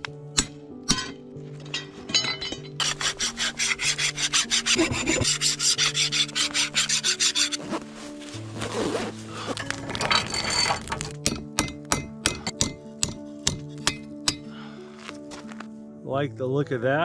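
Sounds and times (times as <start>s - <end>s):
hand file rasping on steel: 2.8s - 7.8s.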